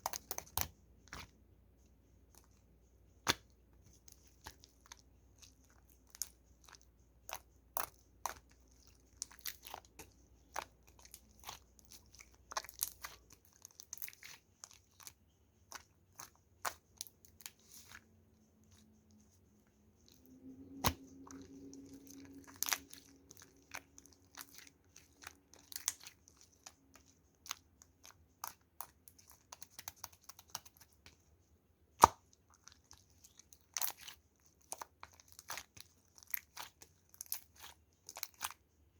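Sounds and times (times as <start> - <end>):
slime clicking and popping: 3.2 - 3.5, 32.0 - 32.3.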